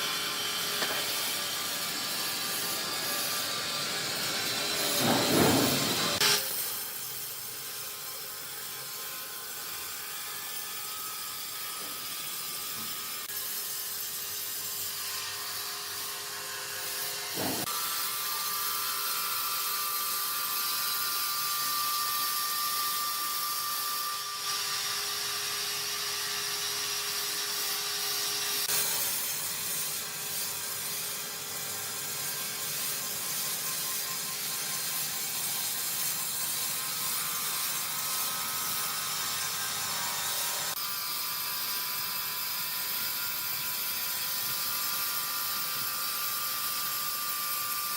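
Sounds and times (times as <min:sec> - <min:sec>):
sawmill machinery whining: 0:00.0 - 0:06.5.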